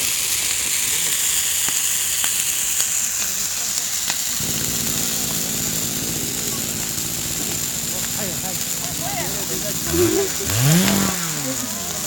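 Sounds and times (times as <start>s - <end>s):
campfire sizzling and crackling: 0.0s - 12.0s
low engine hum: 4.4s - 12.0s.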